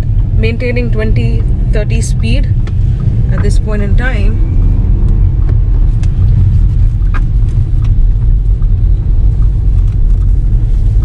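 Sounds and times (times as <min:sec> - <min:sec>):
car driving rumble from inside: 0:00.0 - 0:11.0.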